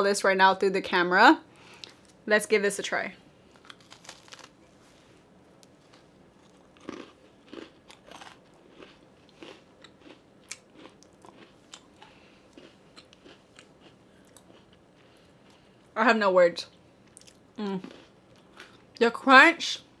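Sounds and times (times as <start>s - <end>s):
person crunching a cookie: 3.5s - 4.7s, 5.6s - 15.9s, 17.0s - 19.0s.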